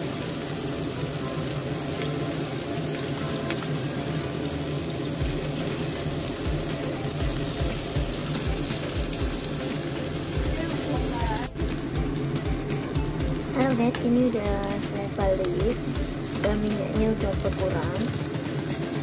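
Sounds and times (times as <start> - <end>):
food sizzling in oil: 0.0 - 19.0
oil popping: 0.0 - 19.0.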